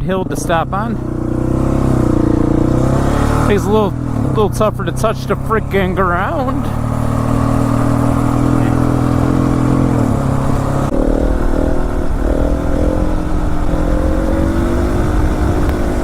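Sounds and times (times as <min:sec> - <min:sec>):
motorcycle engine running: 0:00.0 - 0:16.0
wind buffeting microphone: 0:06.6 - 0:16.0.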